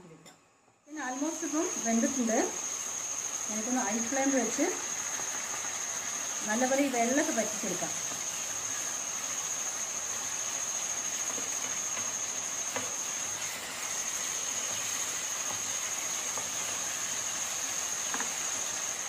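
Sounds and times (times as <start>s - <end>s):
chicken sizzling in a pan: 0.9s - 19.0s.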